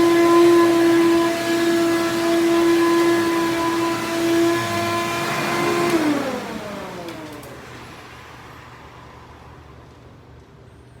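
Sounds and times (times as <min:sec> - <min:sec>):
vacuum cleaner motor whining: 0:00.0 - 0:08.0.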